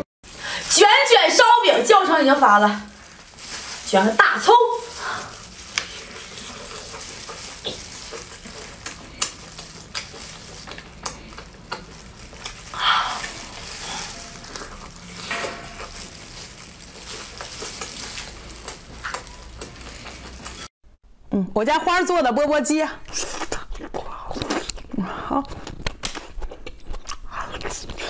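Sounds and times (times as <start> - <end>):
chewing and mouth smacks: 5.3 - 20.7, 23.1 - 28.0.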